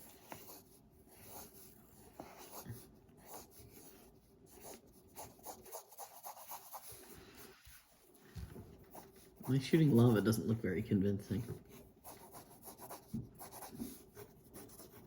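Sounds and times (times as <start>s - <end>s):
drawing tool scratching on paper: 0.0s - 7.5s, 8.8s - 10.5s, 11.4s - 15.0s.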